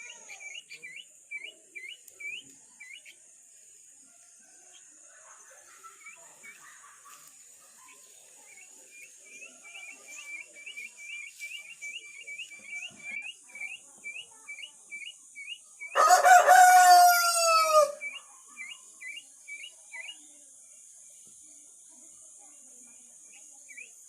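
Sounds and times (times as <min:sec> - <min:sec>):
rooster crowing: 0:16.0 - 0:18.0.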